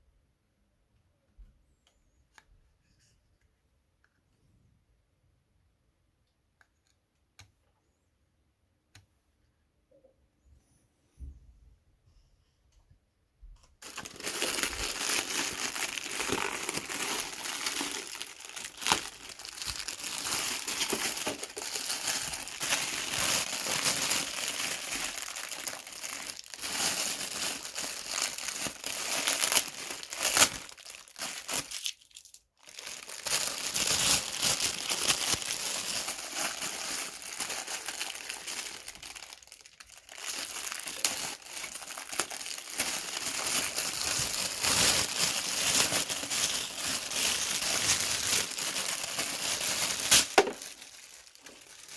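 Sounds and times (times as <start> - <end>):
packaging crinkling: 13.8 - 51.9.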